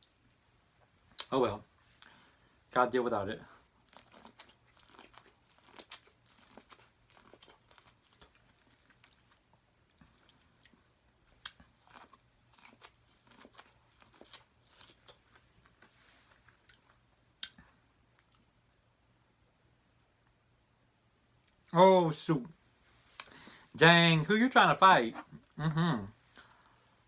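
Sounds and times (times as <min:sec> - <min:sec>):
food being bitten and chewed: 0:03.6 - 0:18.6
small crunches: 0:03.8 - 0:17.6.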